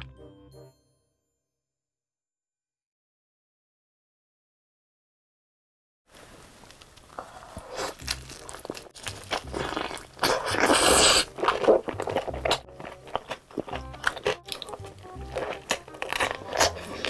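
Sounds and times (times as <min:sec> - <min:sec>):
crunching fried chicken: 0:06.7 - 0:17.0
wet chewing: 0:06.9 - 0:17.0.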